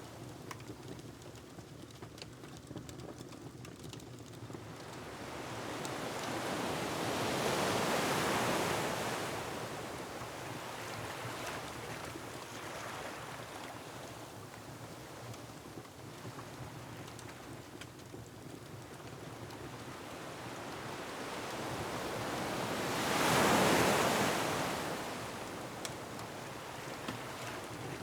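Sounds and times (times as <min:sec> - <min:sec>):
wood fire crackling: 0:00.2 - 0:06.3, 0:15.0 - 0:20.2
steady surf: 0:20.3 - 0:28.0.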